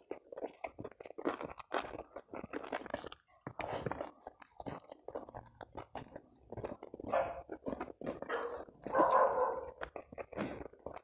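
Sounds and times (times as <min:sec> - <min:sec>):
chewing and mouth smacking: 0:00.0 - 0:11.0.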